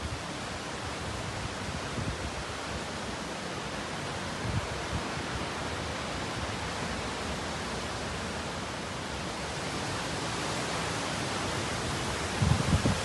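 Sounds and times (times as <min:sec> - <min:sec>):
hurricane wind and rain: 0:00.0 - 0:13.0.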